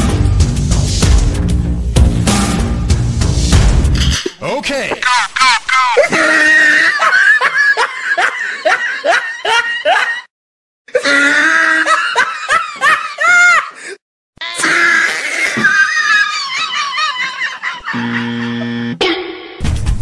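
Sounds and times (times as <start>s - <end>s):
laughter in bursts: 5.0s - 10.3s, 11.0s - 13.8s, 15.5s - 18.8s.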